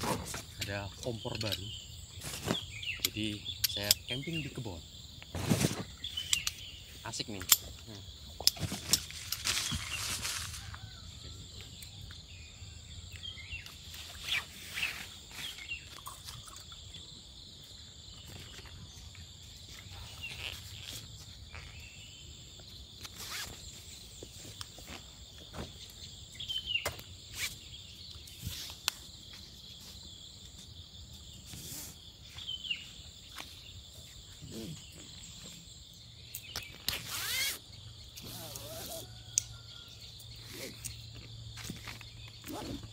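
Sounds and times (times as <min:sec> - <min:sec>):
crickets and insects chirping: 0:00.0 - 0:42.9.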